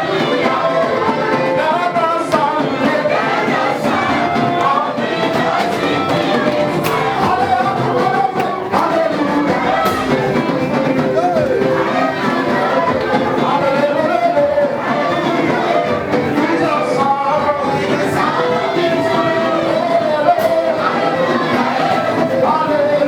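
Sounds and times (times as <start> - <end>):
drum or cymbal hits: 0.0 - 13.8
gospel band playing: 0.0 - 23.0.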